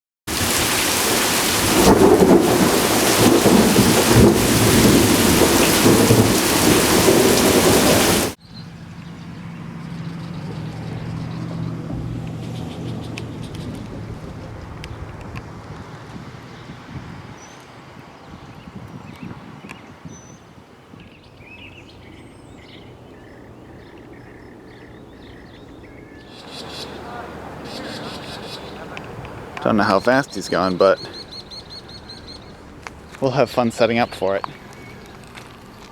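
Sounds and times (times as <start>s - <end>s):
heavy rain: 0.3s - 8.4s, 21.9s - 35.9s
low rumbling thunder: 0.3s - 8.4s, 11.8s - 17.3s
birds chirping: 0.4s - 35.9s.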